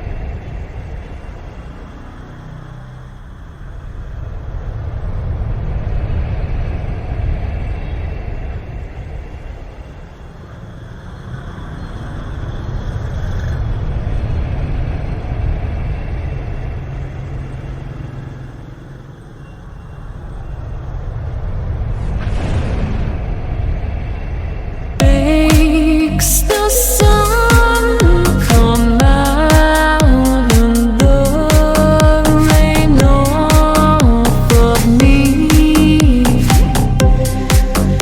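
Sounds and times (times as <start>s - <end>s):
strong gusting wind: 0.0s - 26.2s.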